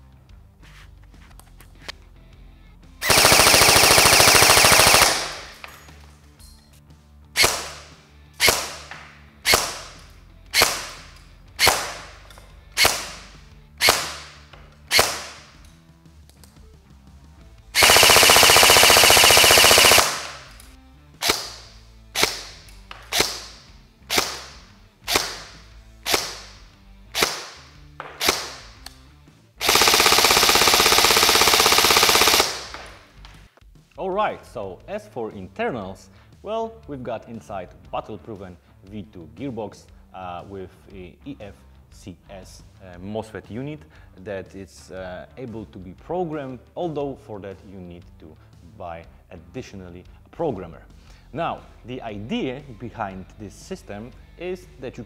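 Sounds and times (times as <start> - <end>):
airsoft gun full-auto bursts: 3.0 - 5.6, 9.5 - 10.0, 10.6 - 11.0, 13.8 - 14.3, 14.9 - 15.5, 17.8 - 20.5, 21.2 - 26.6, 27.2 - 28.7, 29.6 - 33.0
airsoft gun single shots: 11.6 - 12.2, 12.8 - 15.5, 21.2 - 26.6, 27.2 - 28.8.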